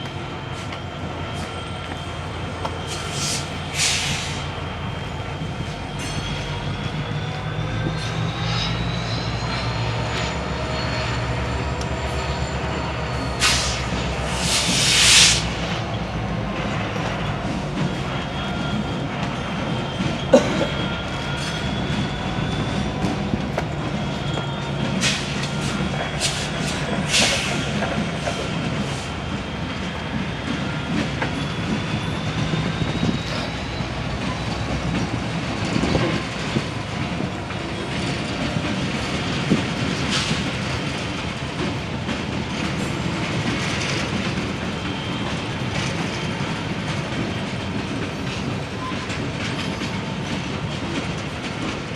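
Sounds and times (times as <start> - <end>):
train wheels clicking over rail joints: 13.1 - 51.9.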